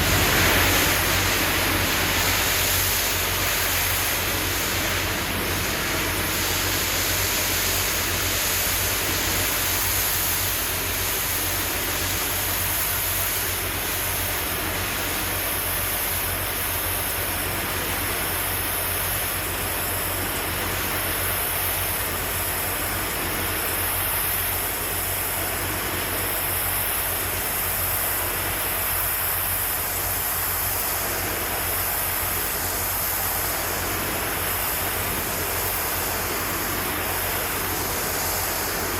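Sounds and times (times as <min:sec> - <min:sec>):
constant low hum: 0:00.0 - 0:38.9
pressure washer water jet hissing: 0:00.0 - 0:38.9.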